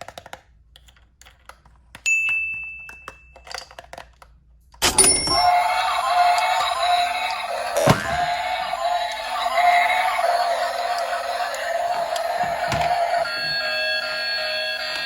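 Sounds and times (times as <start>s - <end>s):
bell-like ding: 4.8s - 5.8s
music with held tones: 5.4s - 15.0s.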